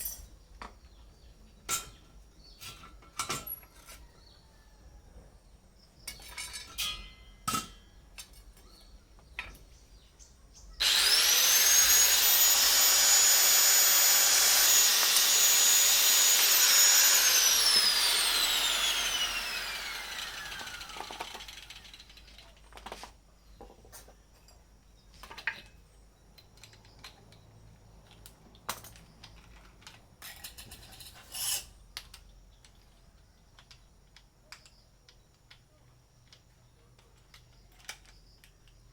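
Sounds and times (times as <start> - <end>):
power tool whining: 10.8 - 22.2.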